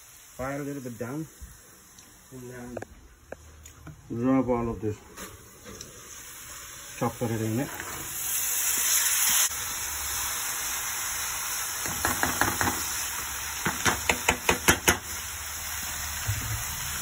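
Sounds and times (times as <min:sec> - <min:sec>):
potatoes sizzling in hot oil: 0:00.0 - 0:17.0
spatula knocking against pan: 0:11.8 - 0:12.8.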